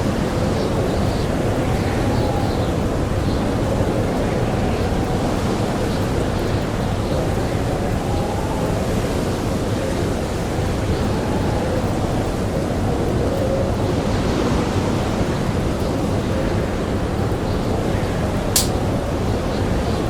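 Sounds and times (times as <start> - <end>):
blizzard wind howling: 0.0 - 20.0
campfire crackling: 14.8 - 20.0.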